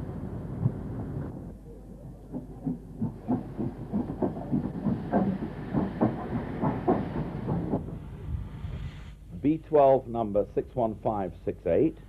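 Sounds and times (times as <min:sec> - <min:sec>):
steam locomotive chuffing: 0:02.3 - 0:09.7.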